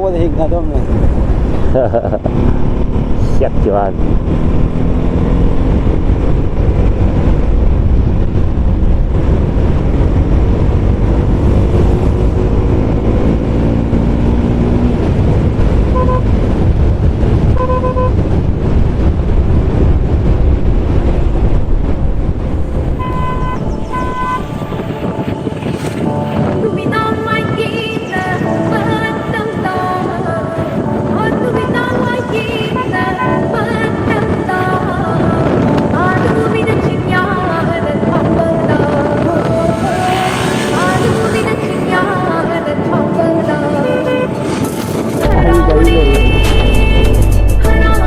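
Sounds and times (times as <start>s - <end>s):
motorcycle engine rumble: 0.0s - 25.8s, 33.6s - 44.1s, 44.8s - 48.0s
wind on microphone: 0.0s - 48.0s
vehicle horn beeps: 15.9s - 16.4s, 17.6s - 18.3s, 23.0s - 24.6s, 45.2s - 47.6s.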